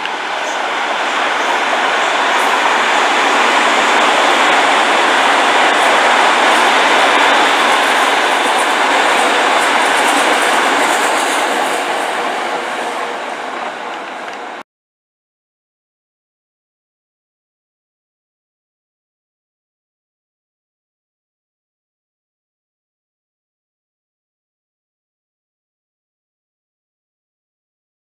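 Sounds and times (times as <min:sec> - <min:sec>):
train wheels on rails: 0:00.0 - 0:14.6.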